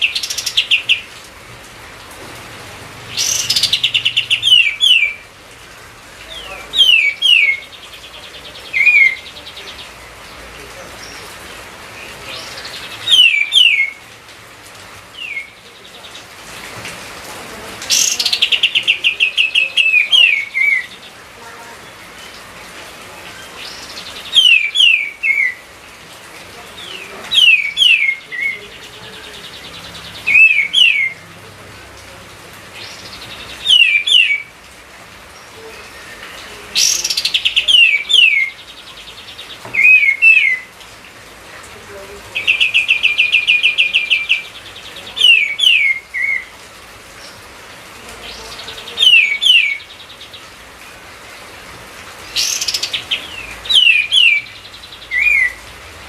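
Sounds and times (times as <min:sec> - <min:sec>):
songbird whistling: 0:13.0 - 0:14.0, 0:33.6 - 0:34.5, 0:52.4 - 0:55.6.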